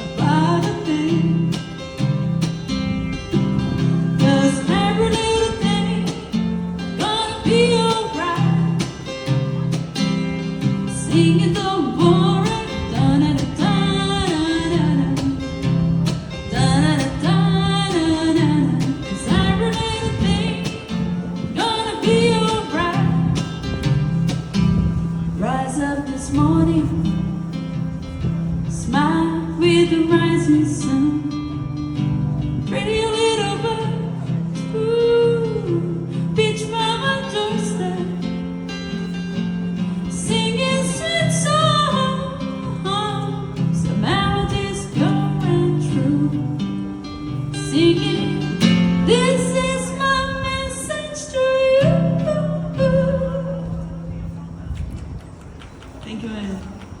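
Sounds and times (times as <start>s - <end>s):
woman singing: 0.0s - 2.2s, 4.0s - 9.2s, 10.9s - 15.5s, 16.4s - 23.6s, 25.4s - 27.3s, 28.7s - 31.6s, 32.7s - 38.4s, 40.0s - 53.8s
acoustic guitar chords: 0.0s - 54.8s.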